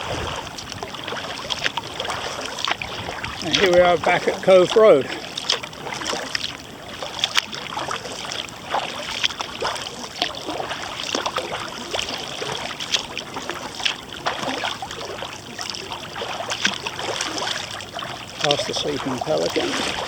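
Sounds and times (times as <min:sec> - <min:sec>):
paddle blades dripping: 0:00.0 - 0:20.0
water splashing and trickling: 0:00.0 - 0:20.0.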